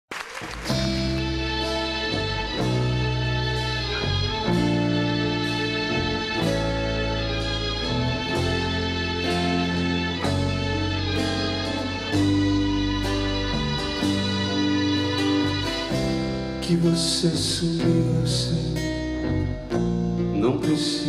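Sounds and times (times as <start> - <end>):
guitar: 0.4 - 21.0
live band playing instrumental: 0.5 - 17.3
bass notes: 0.6 - 21.0.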